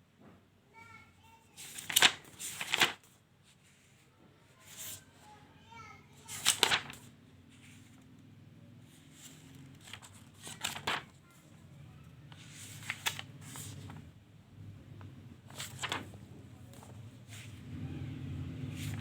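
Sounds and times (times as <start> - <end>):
notebook pages turning: 1.6 - 3.1, 6.3 - 7.9, 9.0 - 11.2, 12.3 - 14.1, 15.5 - 17.6, 18.6 - 19.0.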